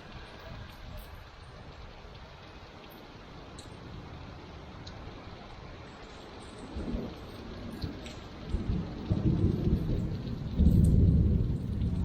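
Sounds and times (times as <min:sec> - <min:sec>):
steady rain: 0:00.0 - 0:12.0
rolling thunder: 0:06.7 - 0:12.0.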